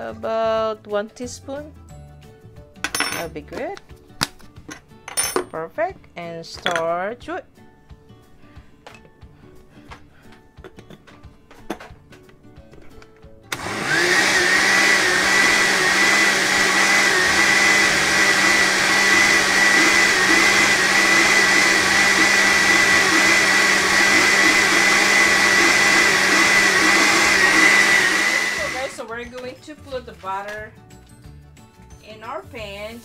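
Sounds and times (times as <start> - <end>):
blender whining: 13.5 - 29.1.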